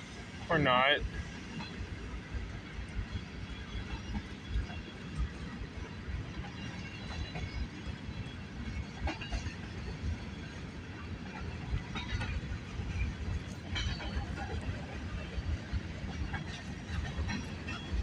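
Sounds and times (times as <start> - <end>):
train cars clanking: 0.0 - 18.0
train wheels rumbling on rail: 0.0 - 18.0.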